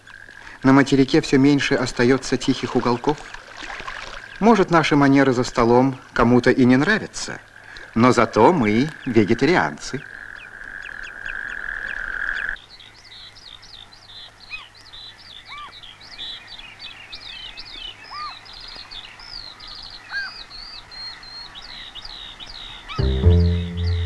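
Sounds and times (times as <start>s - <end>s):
small birds chirping and trilling: 6.6s - 23.0s.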